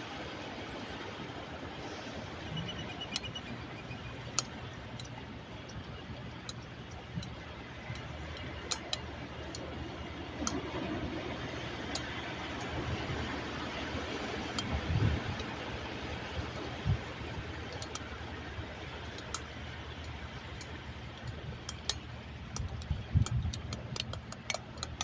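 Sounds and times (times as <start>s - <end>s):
sea surf: 0.0s - 24.7s
sharp clicks: 6.4s - 9.7s, 19.1s - 25.0s.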